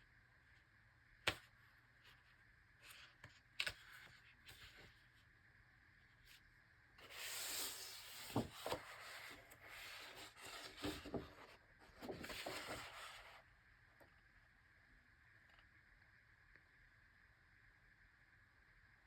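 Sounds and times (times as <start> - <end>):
book pages rustling: 2.8 - 5.1, 7.0 - 13.4
soft thumps of pages: 7.0 - 13.4.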